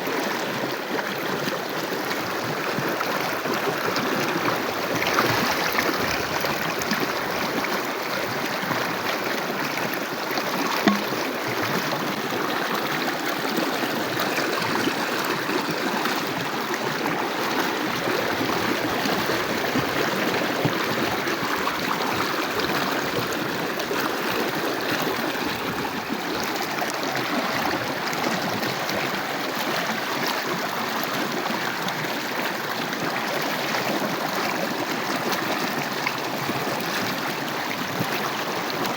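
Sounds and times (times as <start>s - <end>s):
short knock: 10.7s - 11.3s.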